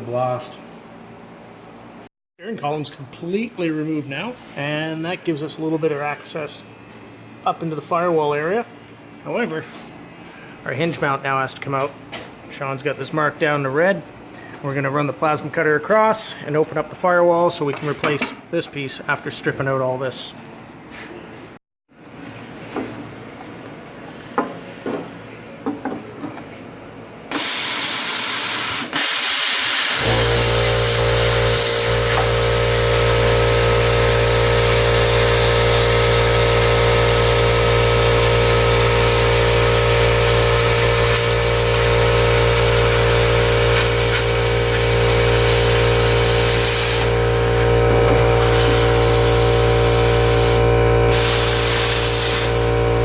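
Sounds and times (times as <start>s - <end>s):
plasma cutter air hiss: 27.3s - 52.9s
plasma cutter hum: 27.3s - 53.0s.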